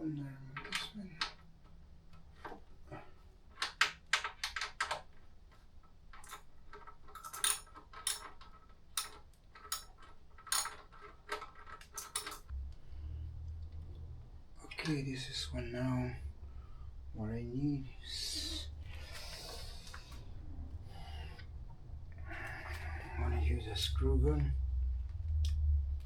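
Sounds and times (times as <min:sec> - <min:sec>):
hand tools clinking on metal: 0:07.1 - 0:12.5.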